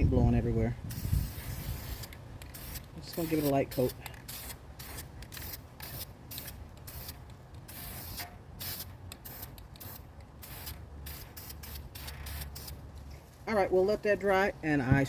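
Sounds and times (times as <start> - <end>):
wind rumbling on microphone: 0.0 - 3.1, 14.8 - 15.0.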